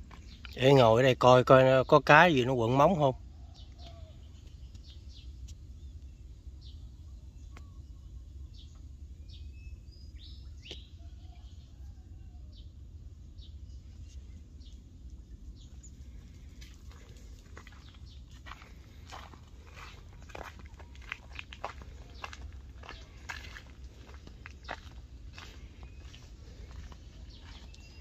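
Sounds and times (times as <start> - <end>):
steady low rumble: 0.0 - 0.6, 3.1 - 28.0
small birds chirping: 0.0 - 28.0.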